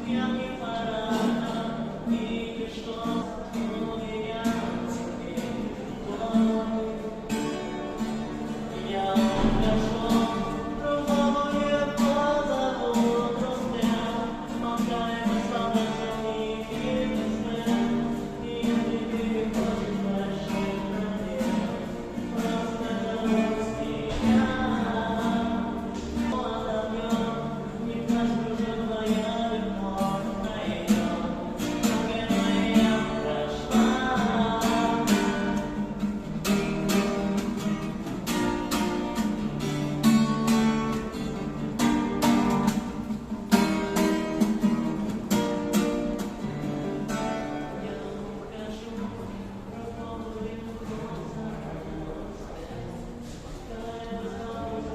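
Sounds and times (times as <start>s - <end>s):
person singing: 0.0s - 42.8s
strummed acoustic guitar: 0.0s - 54.9s.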